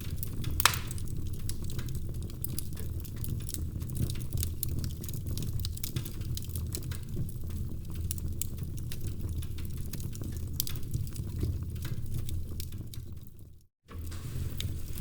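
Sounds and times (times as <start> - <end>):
fire crackling in fireplace: 0.0 - 15.0
loud fire pop: 0.6 - 1.1.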